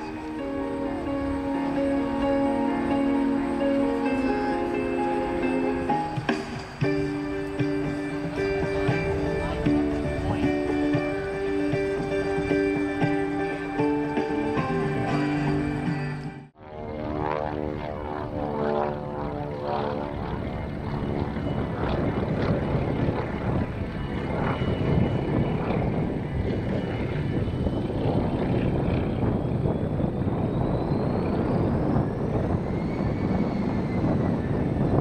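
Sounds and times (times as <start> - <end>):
faint rising and falling whine: 0.0 - 10.0
propeller airplane droning: 0.0 - 35.0.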